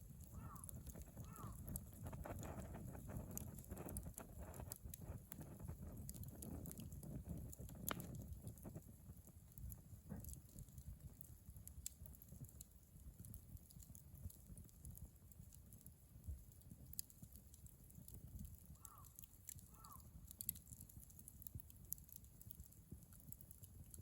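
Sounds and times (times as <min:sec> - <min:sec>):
bonfire crackling: 0:00.0 - 0:24.0.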